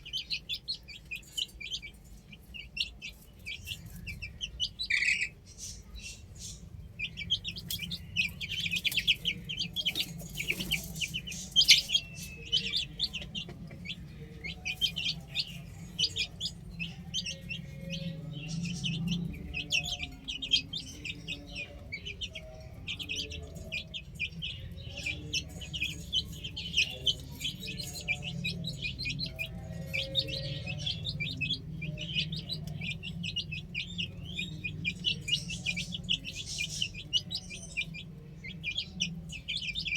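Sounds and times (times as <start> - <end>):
baby chicks chirping: 0.0 - 39.9
steady low rumble: 0.0 - 39.9.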